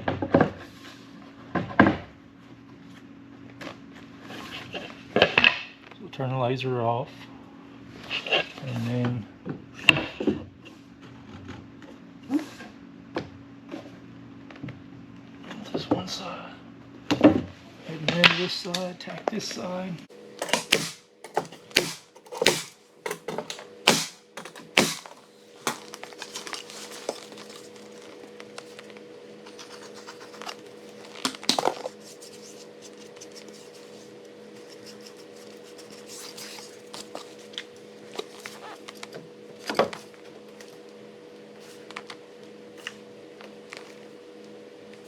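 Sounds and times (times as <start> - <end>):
nail gun shooting nails: 20.4 - 28.0.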